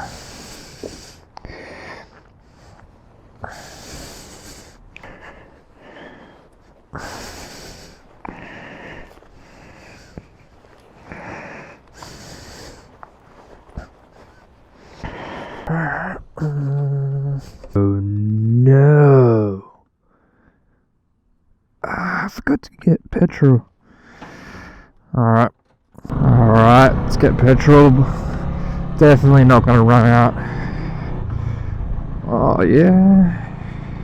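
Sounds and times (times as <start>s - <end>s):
person breathing: 0.0s - 17.8s, 20.0s - 21.0s, 23.8s - 25.0s, 28.0s - 29.0s, 30.3s - 32.2s, 33.1s - 34.0s.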